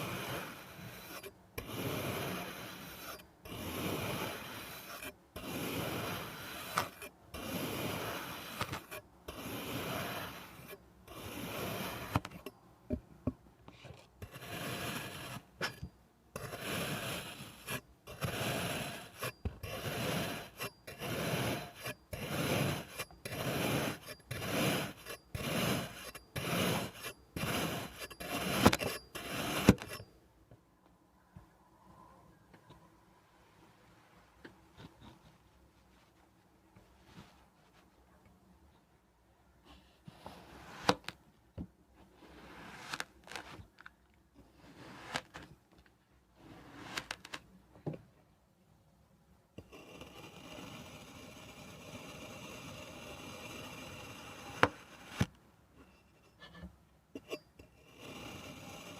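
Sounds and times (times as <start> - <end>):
knife scraping through sand: 0.0 - 12.4, 14.3 - 15.8, 16.4 - 30.1, 42.2 - 43.6, 44.6 - 45.5, 46.4 - 47.4.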